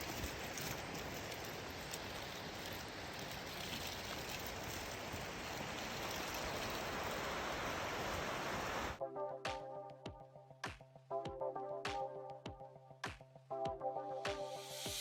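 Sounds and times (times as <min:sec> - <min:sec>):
creek water rushing: 0:00.0 - 0:09.0.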